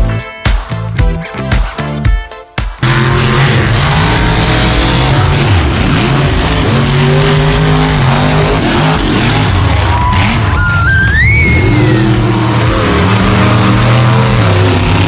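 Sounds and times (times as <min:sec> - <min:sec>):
monster truck engines revving: 0:02.8 - 0:15.0
high whistling tone: 0:08.4 - 0:14.8.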